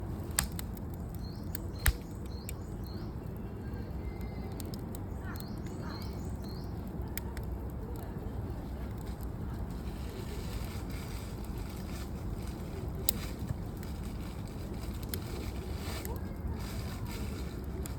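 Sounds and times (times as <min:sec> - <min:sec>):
campfire crackling and popping: 0:00.0 - 0:17.9
wind rumble on microphone: 0:00.0 - 0:17.9
birds chirping: 0:00.8 - 0:06.9.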